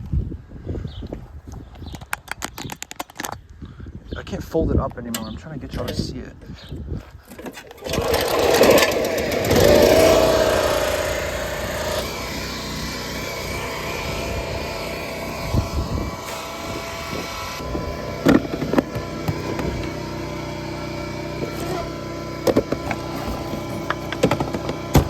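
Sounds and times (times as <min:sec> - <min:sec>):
small gasoline engine running: 0:07.3 - 0:25.0.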